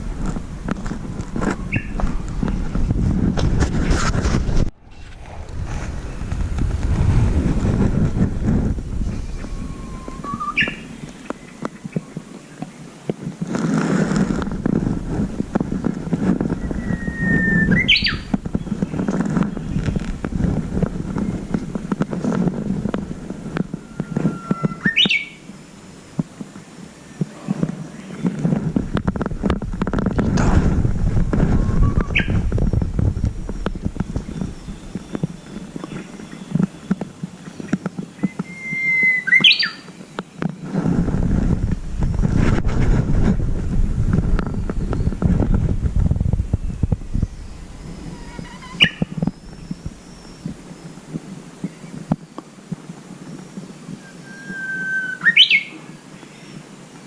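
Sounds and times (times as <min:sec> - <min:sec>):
loud low rumble with clicks: 0:00.0 - 0:12.0, 0:14.0 - 0:24.9, 0:27.2 - 0:38.4, 0:40.7 - 0:50.7
wind on microphone: 0:00.0 - 0:56.8
bird singing whistle and flourish: 0:01.5 - 0:02.0, 0:09.0 - 0:12.8, 0:16.4 - 0:20.1, 0:23.4 - 0:25.5, 0:31.4 - 0:40.0, 0:46.6 - 0:50.8, 0:54.0 - 0:56.6.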